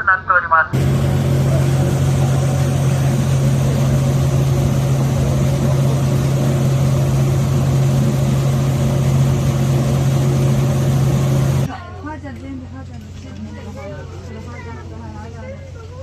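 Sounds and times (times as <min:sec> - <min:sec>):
boat engine humming: 0:00.8 - 0:11.7.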